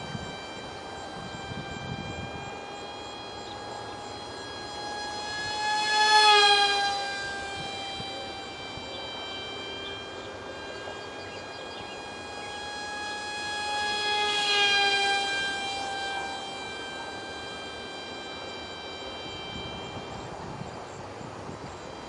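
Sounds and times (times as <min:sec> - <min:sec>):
electric motor propeller whine: 0:00.0 - 0:22.0.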